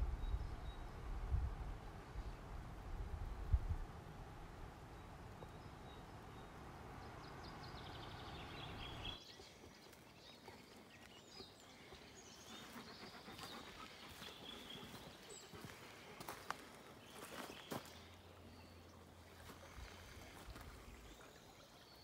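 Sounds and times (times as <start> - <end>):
low steady rush: 0.0 - 9.2
songbirds chirping and trilling: 4.3 - 22.0.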